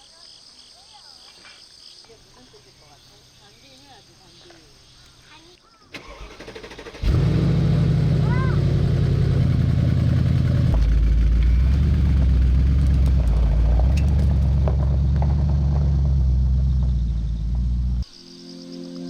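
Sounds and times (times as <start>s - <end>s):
car engine idling: 6.9s - 18.0s.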